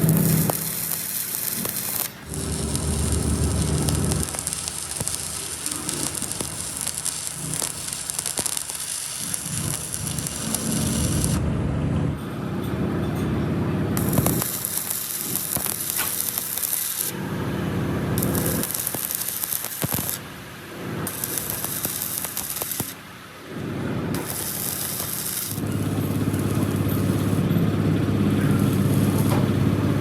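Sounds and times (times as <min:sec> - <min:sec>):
arc welding crackle and sizzle: 0:00.0 - 0:11.4, 0:14.0 - 0:17.2, 0:18.0 - 0:30.0
low machine hum: 0:02.1 - 0:15.5, 0:23.0 - 0:30.0.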